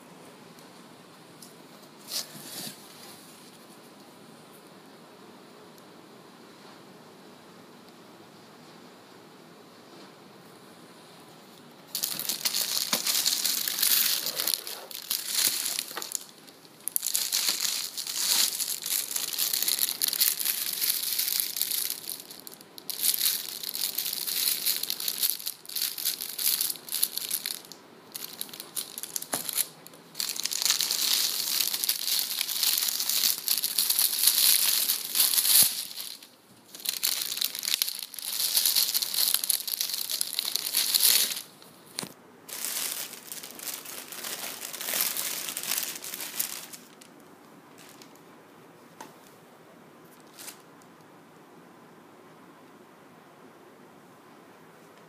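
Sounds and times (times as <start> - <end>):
packaging crinkling: 11.9 - 48.2.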